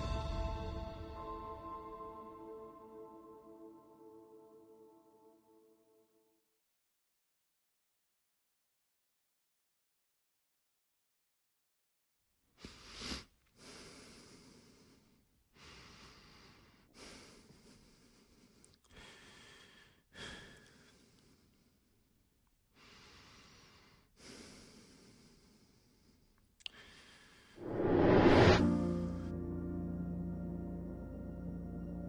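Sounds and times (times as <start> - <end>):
person breathing slowly: 12.6 - 28.6.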